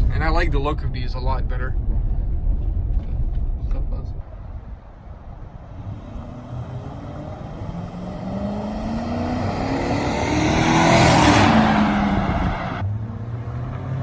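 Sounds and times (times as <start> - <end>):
truck engine accelerating: 4.4 - 12.8.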